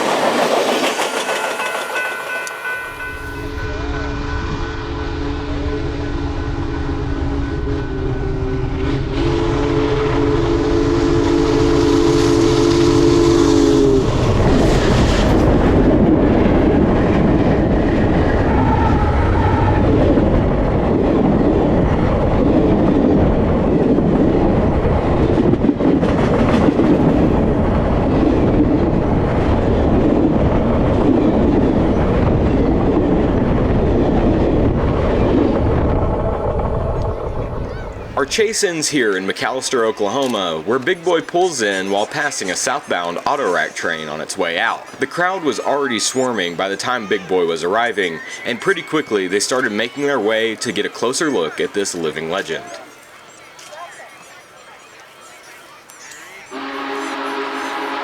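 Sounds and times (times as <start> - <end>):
train wheels clickety-clack: 0.0 - 3.7, 24.8 - 27.5
train whistle chord: 3.2 - 14.4, 56.5 - 58.0.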